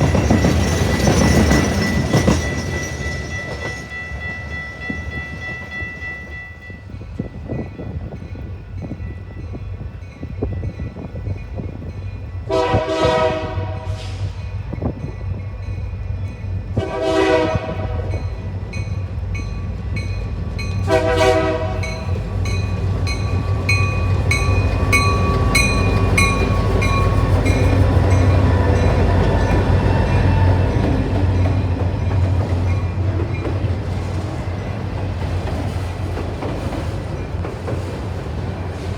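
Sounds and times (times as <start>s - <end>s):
train engine rumble: 0.0s - 38.9s
train horn blasts: 12.4s - 14.4s, 16.7s - 18.3s, 20.8s - 22.2s.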